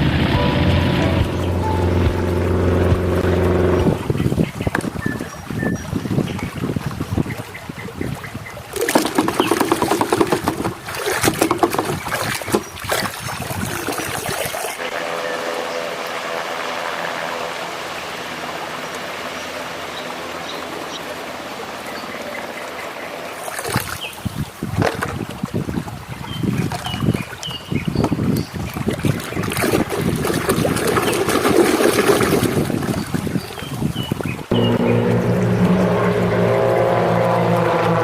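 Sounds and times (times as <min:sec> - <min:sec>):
running water stream: 0:00.0 - 0:38.0
water splashing: 0:00.0 - 0:38.0
plastic toys knocking: 0:08.8 - 0:12.6.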